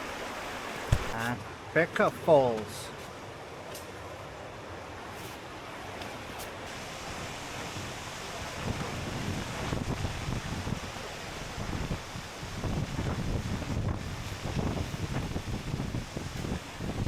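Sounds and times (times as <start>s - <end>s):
waterfall rushing: 0.0s - 2.6s, 6.6s - 17.0s
wind buffeting microphone: 7.0s - 17.0s.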